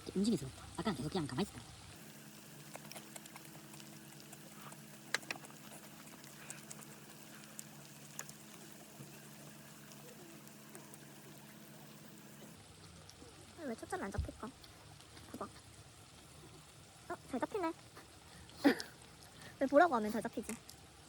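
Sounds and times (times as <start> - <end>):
steady low hum: 0.0 - 12.7.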